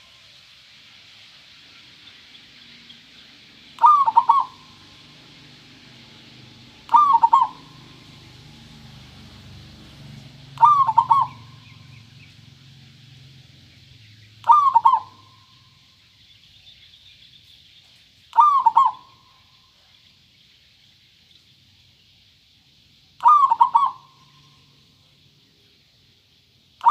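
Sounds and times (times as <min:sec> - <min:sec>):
dove cooing: 0:03.8 - 0:05.0, 0:06.8 - 0:08.4, 0:10.5 - 0:12.0, 0:14.4 - 0:15.5, 0:18.3 - 0:19.3, 0:23.2 - 0:24.4.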